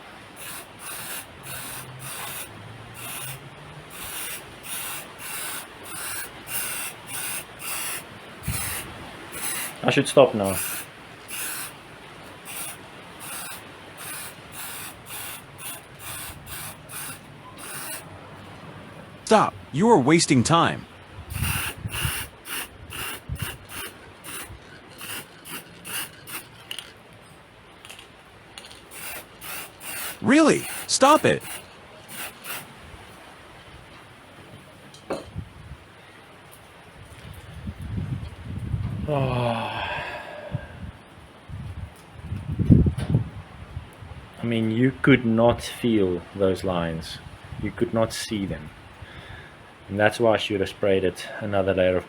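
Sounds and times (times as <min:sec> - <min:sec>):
sanding metal by hand: 0:00.4 - 0:09.8, 0:10.5 - 0:11.8, 0:12.5 - 0:18.0, 0:21.3 - 0:26.6, 0:28.9 - 0:32.7.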